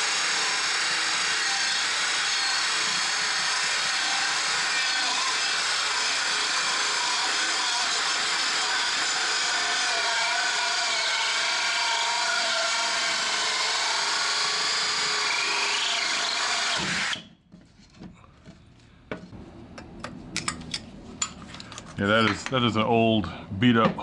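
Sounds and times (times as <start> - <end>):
drill boring into wood: 0.0 - 17.3.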